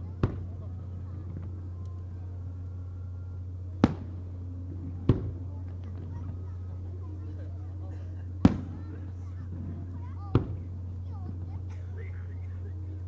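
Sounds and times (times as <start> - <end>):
steady low hum: 0.0 - 13.0
fireworks bangs: 0.2 - 0.6, 3.8 - 5.4, 8.4 - 8.9, 9.5 - 10.7.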